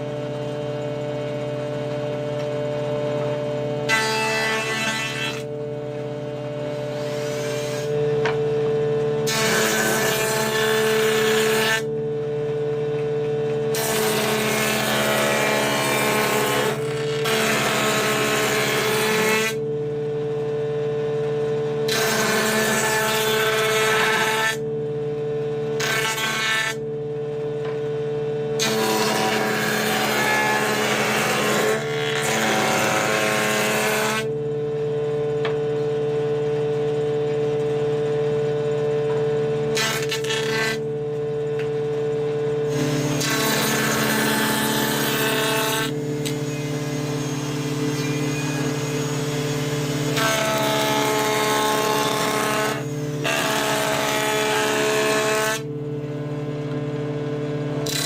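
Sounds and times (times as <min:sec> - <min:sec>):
rasping wood cutting: 0:13.7 - 0:19.6, 0:21.9 - 0:24.6, 0:28.6 - 0:34.3, 0:39.7 - 0:40.8, 0:42.7 - 0:55.6
planer motor whining: 0:34.0 - 0:56.8.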